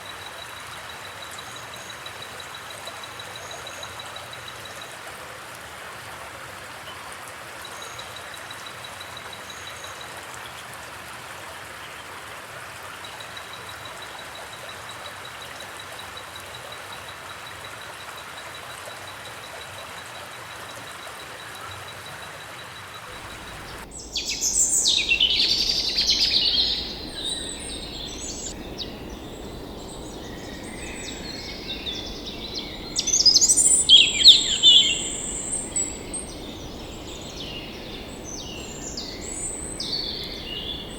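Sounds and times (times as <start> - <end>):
flowing water: 0.0 - 40.9
birds chirping: 23.2 - 40.9.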